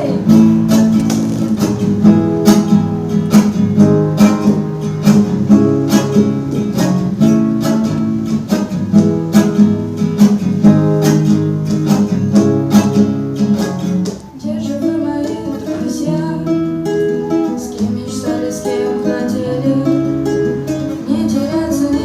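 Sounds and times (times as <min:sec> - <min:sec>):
strummed guitar chords: 0:00.0 - 0:22.0.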